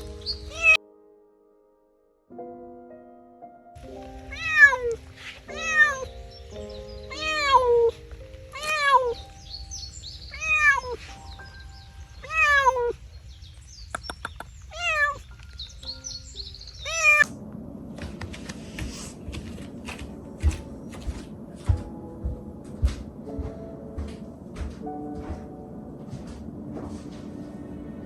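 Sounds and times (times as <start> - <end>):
background music: 0.0 - 12.6, 20.4 - 28.0
cat meowing: 0.5 - 0.8, 4.3 - 6.3, 7.0 - 9.6, 10.2 - 13.0, 14.7 - 15.4, 16.7 - 17.3.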